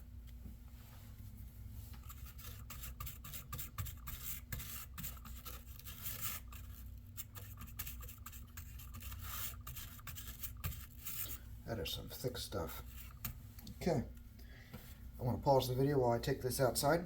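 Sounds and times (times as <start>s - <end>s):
brush scrubbing laptop fan: 1.8s - 13.4s.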